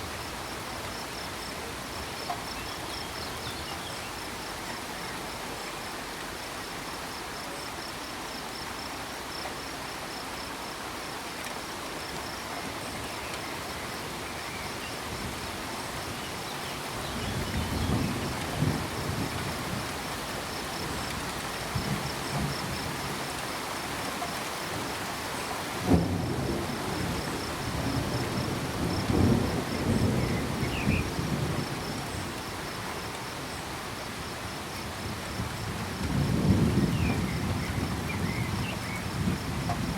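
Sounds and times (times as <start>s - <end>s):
crickets chirping: 0.0s - 39.9s
steady rain: 0.0s - 39.9s
low rolling thunder: 17.1s - 23.3s, 25.8s - 32.5s, 34.9s - 39.9s
sharp thunder crack: 25.8s - 31.6s.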